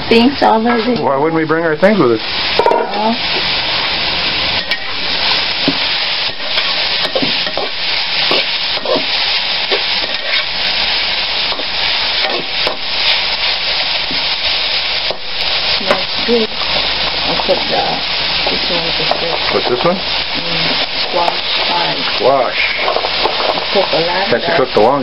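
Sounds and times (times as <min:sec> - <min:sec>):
food sizzling in a wok: 0:00.0 - 0:25.0
metal spatula scraping a pan: 0:04.5 - 0:14.3.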